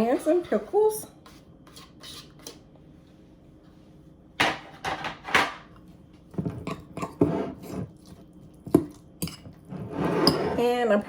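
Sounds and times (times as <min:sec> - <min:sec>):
vegetables scraping into bowl: 0:09.6 - 0:10.8.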